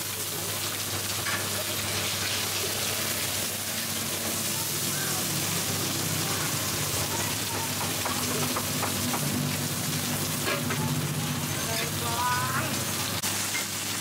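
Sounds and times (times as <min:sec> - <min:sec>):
batter frying in hot oil: 0:00.0 - 0:14.0.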